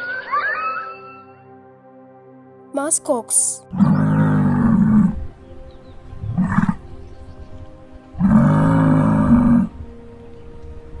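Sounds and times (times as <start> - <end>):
muskox bellowing: 3.7 - 5.2, 6.2 - 6.9, 8.1 - 9.8.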